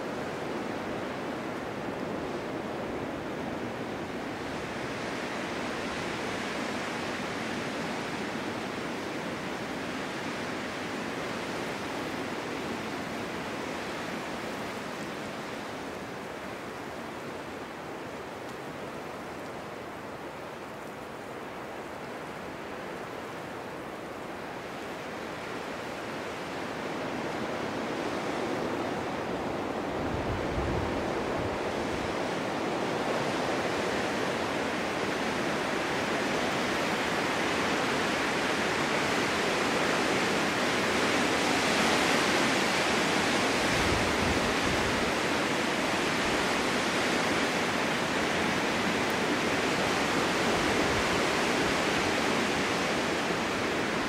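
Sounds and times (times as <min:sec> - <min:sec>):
snowstorm wind blowing: 0:00.0 - 0:54.0
wind buffeting microphone: 0:27.1 - 0:39.2.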